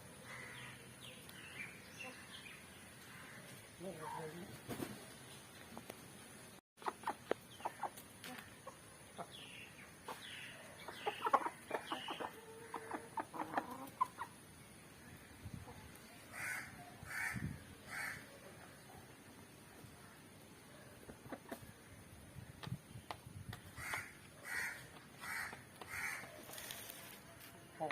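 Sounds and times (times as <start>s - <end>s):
chickens clucking: 6.8s - 14.7s, 20.9s - 22.0s.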